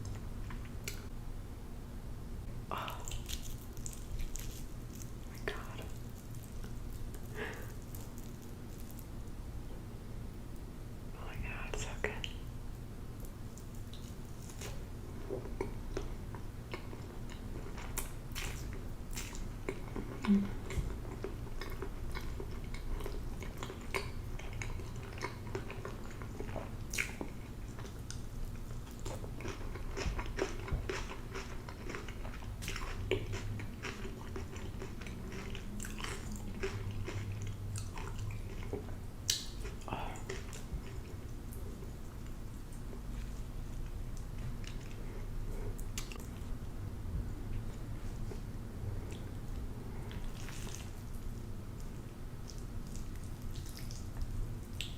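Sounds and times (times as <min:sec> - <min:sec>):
person biting and chewing food: 0:02.8 - 0:09.1.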